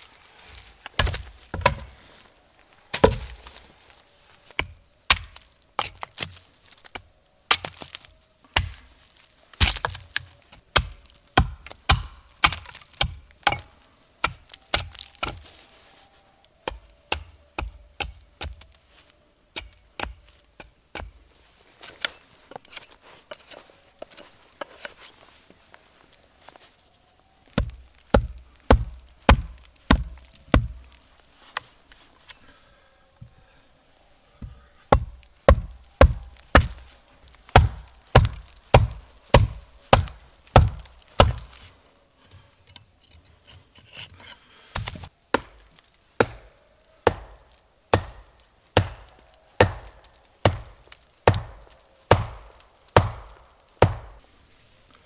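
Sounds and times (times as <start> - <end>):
tool chopping wood: 1.0 - 2.0, 2.9 - 3.5, 4.6 - 6.0, 8.6 - 8.8, 9.6 - 15.5, 27.6 - 30.9, 34.4 - 41.6, 44.8 - 54.2.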